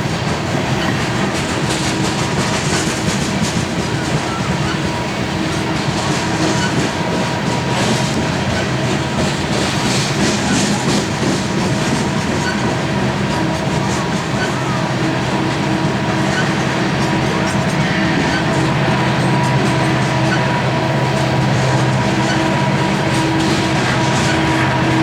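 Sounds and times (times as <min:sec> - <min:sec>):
train wheels clicking over rail joints: 0:00.0 - 0:25.0
steady hum: 0:13.8 - 0:25.0.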